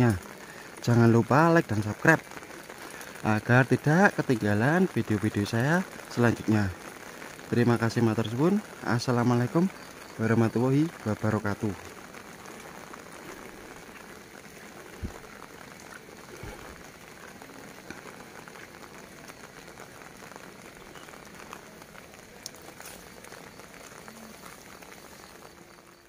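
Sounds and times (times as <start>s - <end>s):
light drizzle on grass: 0.0s - 26.0s
dull low thump: 15.0s - 15.2s.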